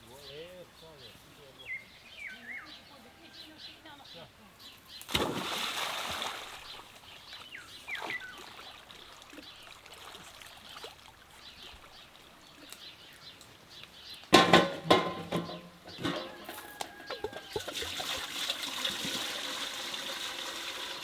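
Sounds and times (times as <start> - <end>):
bird chirps: 0.1 - 5.1, 6.7 - 8.6
chickens calling: 14.2 - 18.7.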